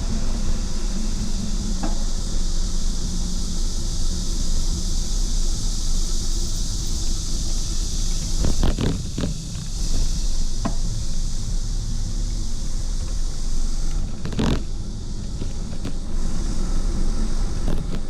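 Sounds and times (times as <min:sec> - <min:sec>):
bicycle road rumble: 0:00.0 - 0:18.0
knocks and rattles: 0:14.0 - 0:16.0.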